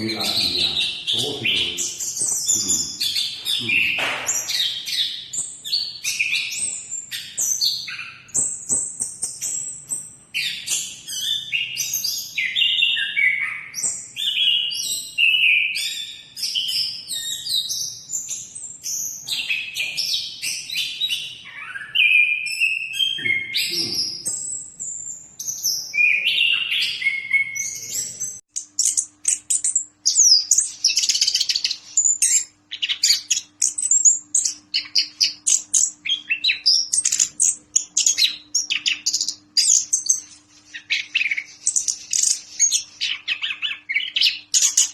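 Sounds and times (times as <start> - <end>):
high chattering bird notes: 0.0 - 44.9
bird singing whistled phrases: 10.4 - 44.9.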